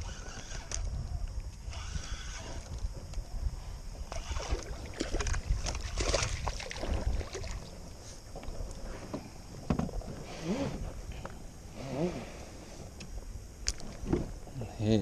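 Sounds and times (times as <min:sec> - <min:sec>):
wind rumbling on microphone: 0:00.0 - 0:15.0
knocks and scrapes on boat: 0:08.0 - 0:13.0, 0:13.8 - 0:14.5.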